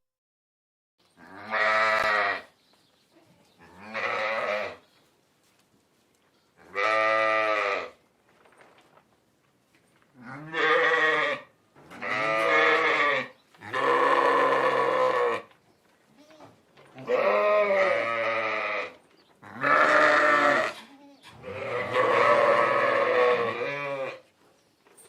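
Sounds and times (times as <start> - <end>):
sheep bleating: 1.2 - 2.5, 3.6 - 4.8, 6.6 - 8.0, 10.2 - 15.5, 16.2 - 24.2.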